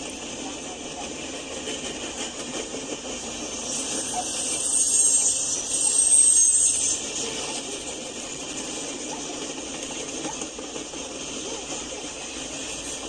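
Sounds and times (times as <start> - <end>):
freight train rumbling past: 0.0 - 13.0
loud high-pitched hiss: 3.1 - 8.3.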